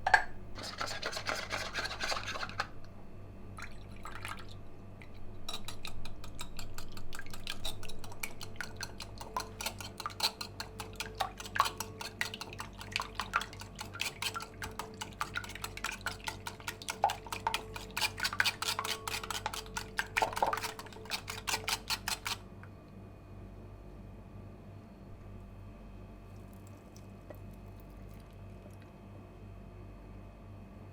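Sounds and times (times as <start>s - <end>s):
utensil clicking against dish: 5.5s - 22.4s.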